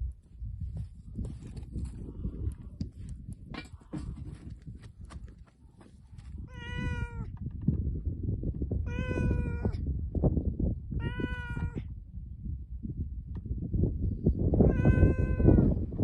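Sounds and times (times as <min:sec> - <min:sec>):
cat meowing: 0:06.5 - 0:07.3, 0:08.9 - 0:09.8, 0:11.0 - 0:11.9, 0:14.6 - 0:15.7.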